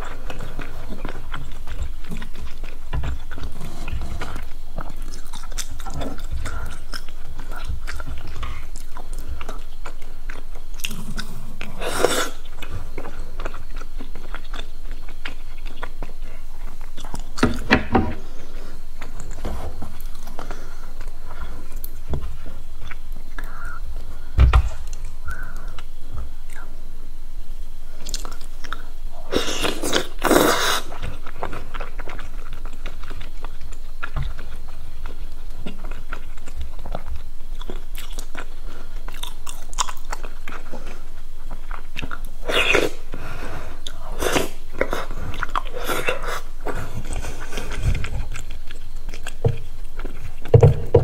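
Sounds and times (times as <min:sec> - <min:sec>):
crunchy chewing: 0:00.0 - 0:51.0
low thump: 0:24.4 - 0:24.8.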